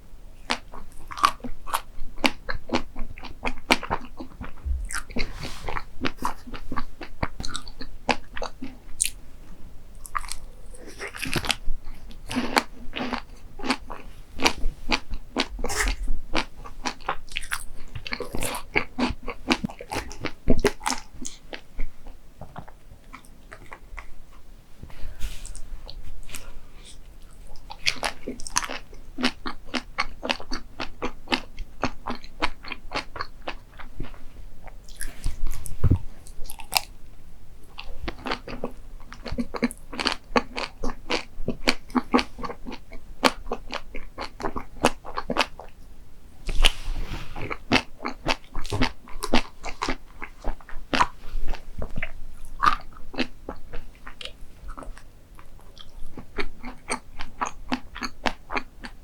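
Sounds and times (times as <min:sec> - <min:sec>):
crunchy chewing: 0:00.4 - 0:09.2, 0:10.0 - 0:37.0, 0:37.6 - 0:45.8, 0:46.4 - 0:59.0.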